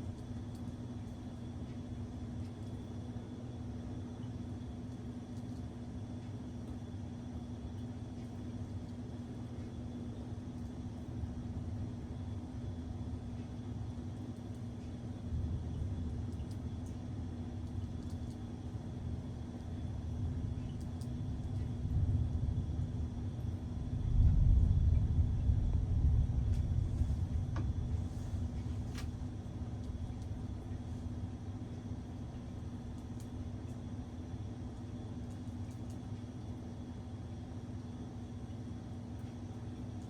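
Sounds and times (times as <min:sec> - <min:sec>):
thunder rumbling: 0:21.6 - 0:28.7.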